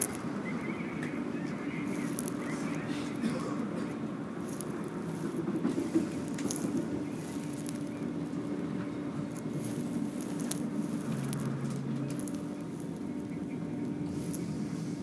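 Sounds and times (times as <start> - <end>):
motor hum: 0.0 - 15.0
train rumbling along track: 0.1 - 15.0.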